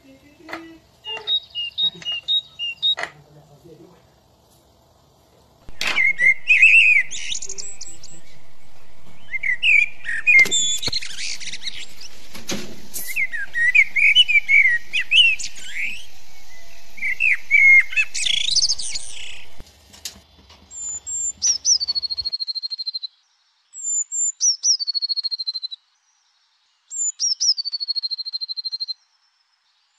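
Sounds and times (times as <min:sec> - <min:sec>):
birds twittering and chirping: 0:00.0 - 0:19.6, 0:20.3 - 0:29.9
steady hiss: 0:02.6 - 0:21.4
falling whistles: 0:05.8 - 0:08.2, 0:12.9 - 0:19.6.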